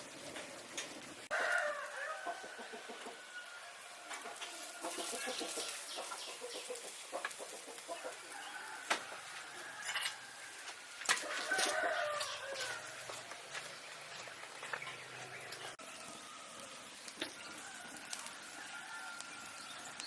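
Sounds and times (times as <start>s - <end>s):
chickens clucking: 0.1s - 15.8s.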